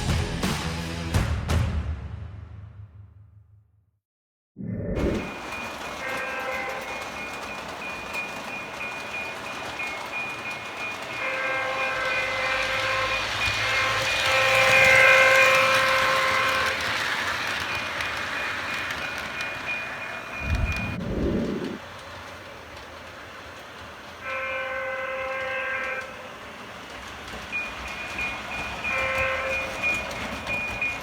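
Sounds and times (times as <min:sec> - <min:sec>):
passing train running noise: 0:04.9 - 0:31.0
train horn chord blasts: 0:11.2 - 0:16.8.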